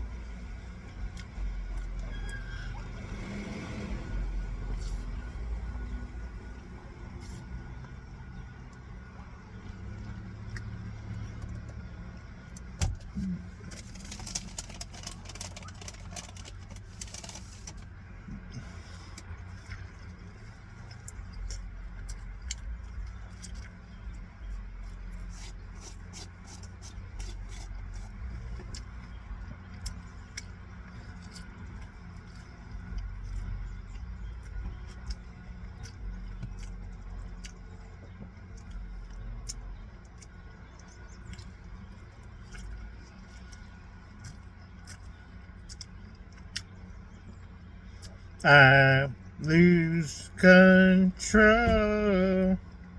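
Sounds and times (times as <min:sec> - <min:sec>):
steady low rumble: 0:00.0 - 0:02.1.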